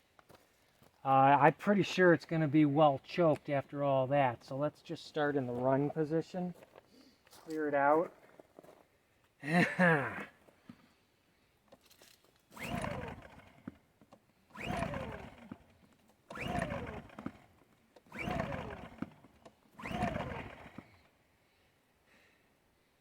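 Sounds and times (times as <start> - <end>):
generator recoil cord pull: 11.7 - 21.1.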